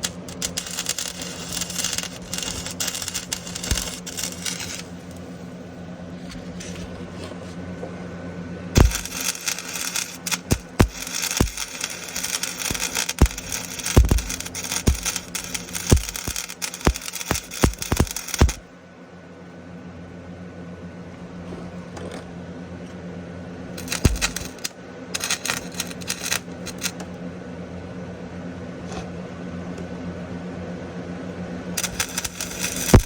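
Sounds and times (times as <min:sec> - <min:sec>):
welding arc crackling and popping: 0:00.0 - 0:05.4, 0:08.8 - 0:18.6, 0:23.8 - 0:27.0, 0:31.8 - 0:33.0
steady low hum: 0:00.0 - 0:33.0.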